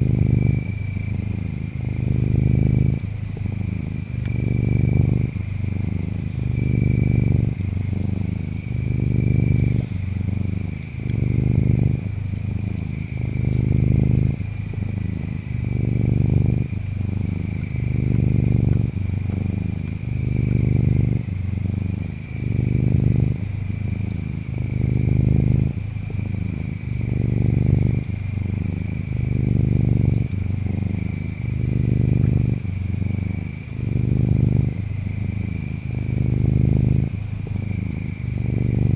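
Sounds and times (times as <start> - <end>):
cat purring: 0.0 - 38.9
insects chirping: 0.0 - 38.9.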